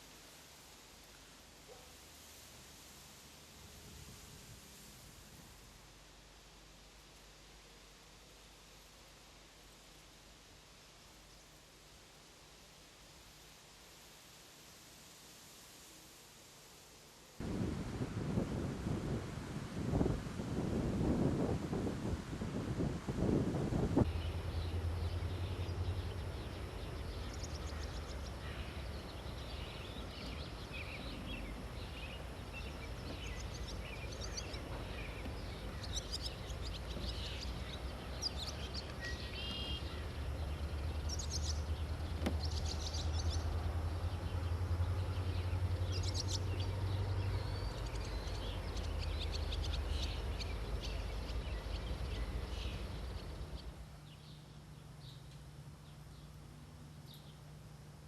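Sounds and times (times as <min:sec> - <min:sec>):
steady low rumble: 0:17.4 - 0:38.9
songbirds calling and singing: 0:24.0 - 0:58.0.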